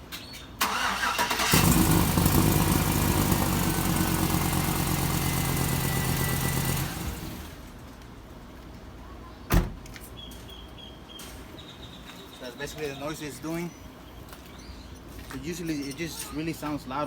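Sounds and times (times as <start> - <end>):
starter cranking engine: 0.6 - 3.8
engine running with exhaust leak: 0.6 - 7.8.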